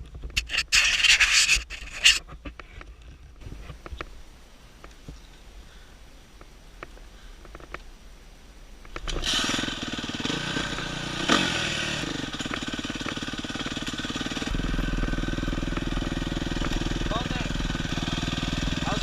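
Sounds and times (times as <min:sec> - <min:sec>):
dirt bike engine running: 0:09.0 - 0:19.0
engine revving: 0:09.0 - 0:19.0.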